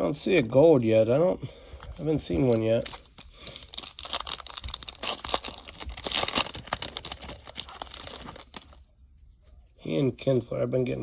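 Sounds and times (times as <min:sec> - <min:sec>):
foil wrapper tearing and crinkling: 0:02.4 - 0:08.8.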